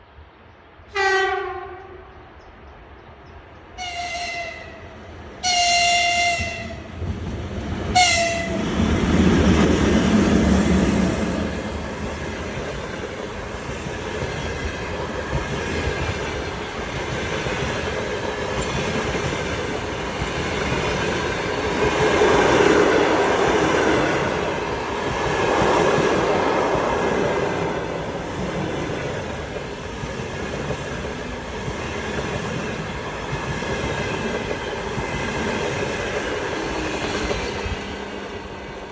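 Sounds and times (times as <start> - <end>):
locomotive horn blasts: 0.9 - 2.3, 3.8 - 6.9, 7.9 - 8.6
train wheels on rails: 4.4 - 38.9.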